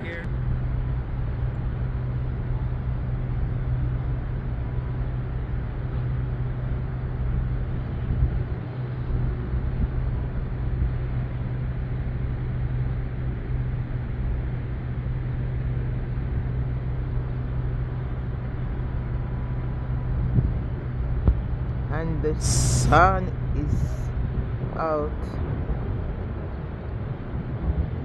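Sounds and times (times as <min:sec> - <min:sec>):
low engine rumble: 0:00.0 - 0:28.0.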